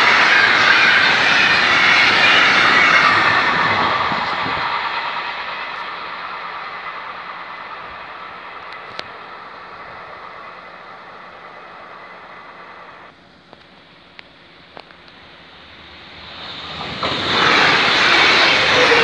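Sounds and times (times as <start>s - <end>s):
train rolling noise: 0.0s - 19.0s.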